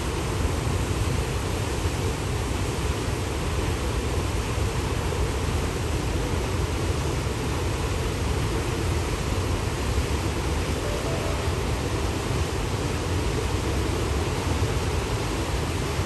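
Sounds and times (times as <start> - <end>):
waterfall rushing: 9.8 - 16.0.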